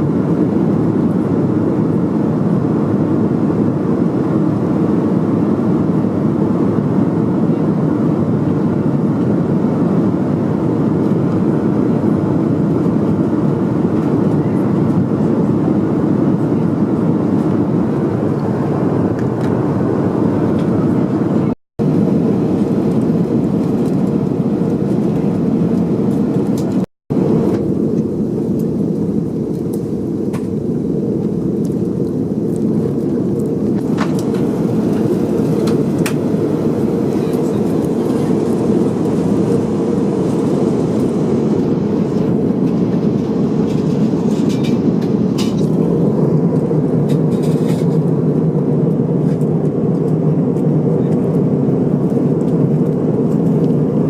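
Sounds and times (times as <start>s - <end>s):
jet engines and airflow rush: 0.0s - 54.0s.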